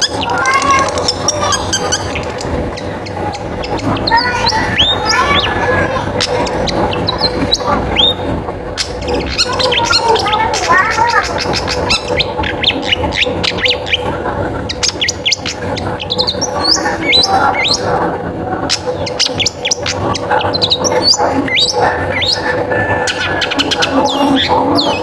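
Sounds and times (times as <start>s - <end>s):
bird song chirps and whistles: 0.0s - 10.4s, 11.0s - 18.0s, 18.7s - 25.0s.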